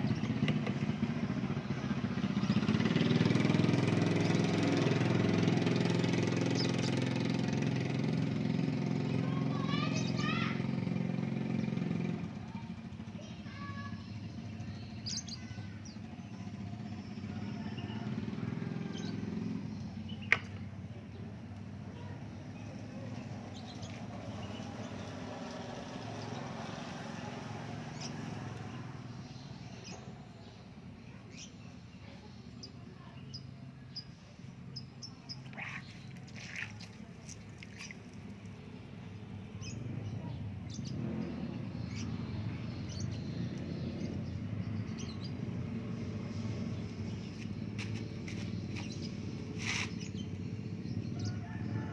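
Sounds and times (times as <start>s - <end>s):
bird chirps: 31.2s - 36.9s.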